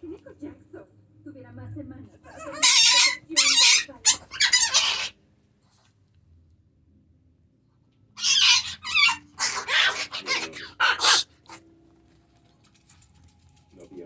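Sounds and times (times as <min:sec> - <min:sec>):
dog and cat growls hisses and yips: 0:02.3 - 0:05.1, 0:08.2 - 0:11.6.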